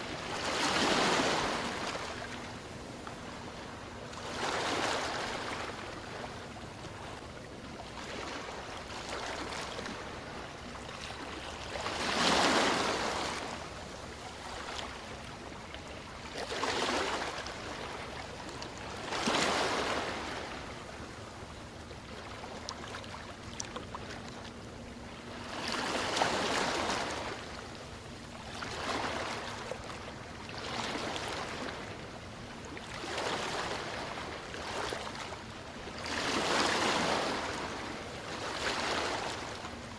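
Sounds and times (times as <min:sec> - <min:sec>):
sea waves breaking: 0:00.0 - 0:06.6, 0:08.0 - 0:15.2, 0:16.4 - 0:21.0, 0:28.5 - 0:29.9, 0:36.0 - 0:39.9.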